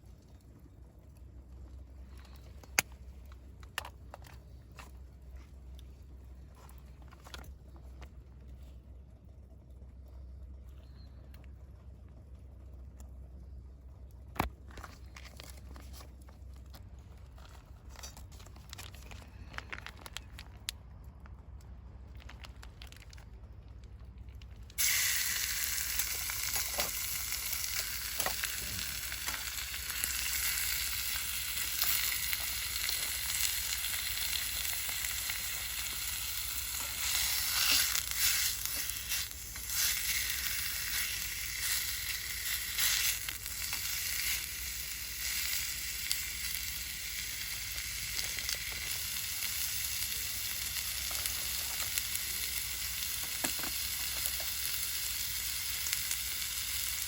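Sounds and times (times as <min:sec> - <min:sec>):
food sizzling in a hot pan: 0:24.8 - 0:57.0.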